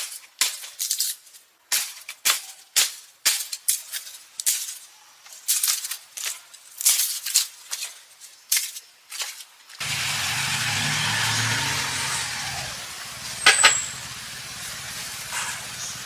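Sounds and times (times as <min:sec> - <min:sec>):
sharp crackles and rustles: 0:00.0 - 0:10.0.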